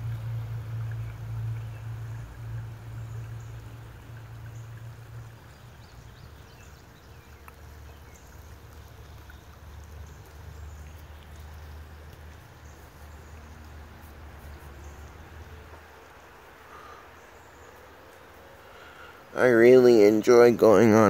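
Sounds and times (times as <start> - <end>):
low rumble: 0.0 - 6.0
creek water trickling: 0.0 - 21.0.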